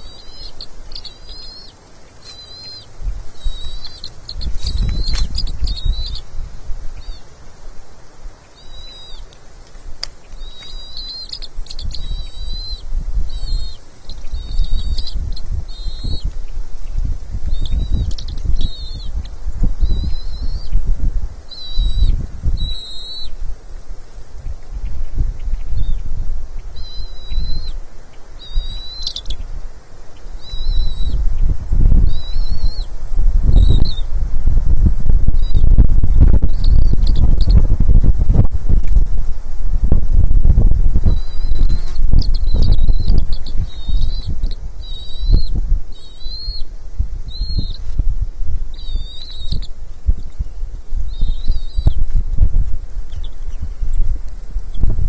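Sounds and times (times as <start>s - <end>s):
eagle squeals: 0.0s - 6.4s
eagle chirping: 0.0s - 23.5s, 24.1s - 34.1s, 35.3s - 38.3s, 40.4s - 52.2s, 53.0s - 55.0s
wind rumble on microphone: 0.0s - 55.0s.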